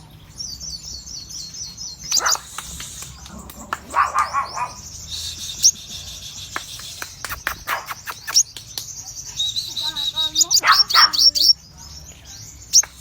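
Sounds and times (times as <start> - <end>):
songbird chirping and twittering: 0.0 - 13.0
sharp clicks: 2.2 - 4.0, 6.5 - 9.0.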